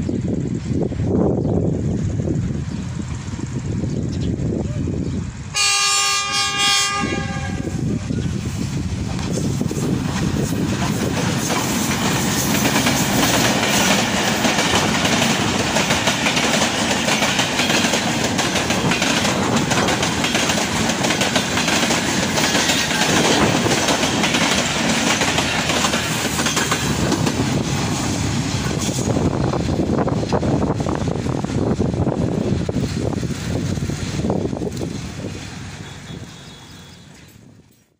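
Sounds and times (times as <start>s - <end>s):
locomotive passing: 0.0s - 37.9s
train wheels clattering over rail joints: 8.9s - 36.0s.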